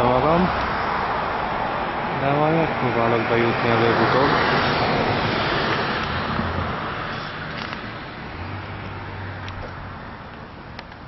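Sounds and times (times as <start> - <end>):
passing vehicle: 0.0 - 11.0.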